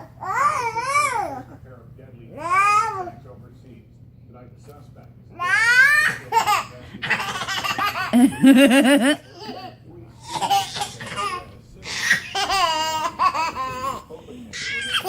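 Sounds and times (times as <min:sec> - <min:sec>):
baby laughing: 0:05.4 - 0:09.7, 0:10.3 - 0:15.0
lower-pitched laugh: 0:08.1 - 0:09.2.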